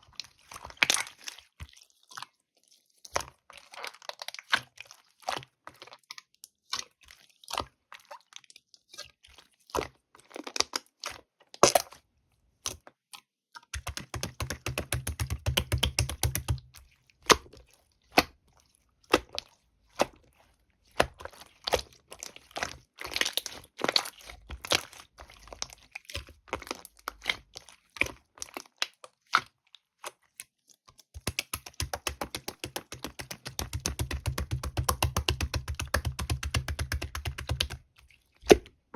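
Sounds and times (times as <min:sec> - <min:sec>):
slime clicking and popping: 0:13.8 - 0:16.6, 0:31.2 - 0:37.8.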